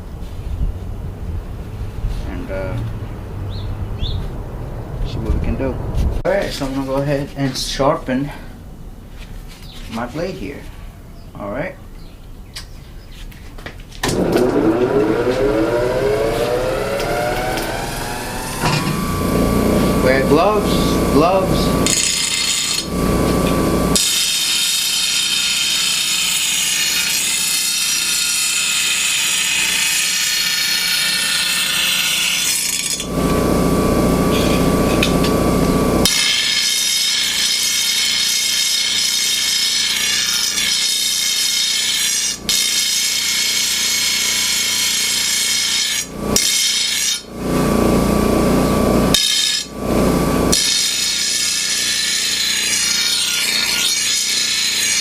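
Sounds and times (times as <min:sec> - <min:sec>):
grinder grinding steel blade: 0:14.0 - 0:55.0
grinder whining freely: 0:14.0 - 0:55.0.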